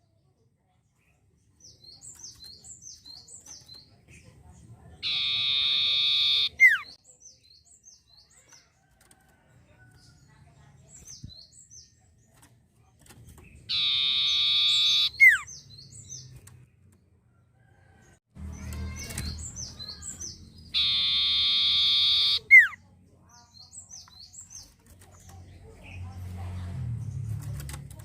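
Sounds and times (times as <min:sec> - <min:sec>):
bird high chirps: 0:01.6 - 0:08.8, 0:13.4 - 0:16.6, 0:18.5 - 0:26.1
bird buzzy trill: 0:05.0 - 0:06.9, 0:13.7 - 0:15.4, 0:20.7 - 0:22.8.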